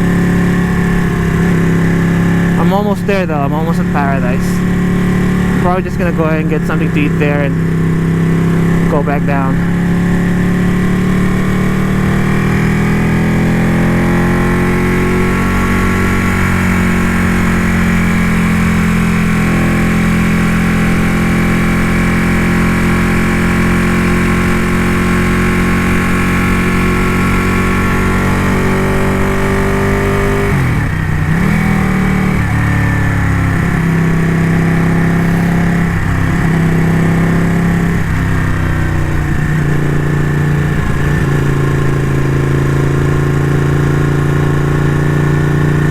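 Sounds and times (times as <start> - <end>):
motorcycle engine cruising: 0.0 - 45.9.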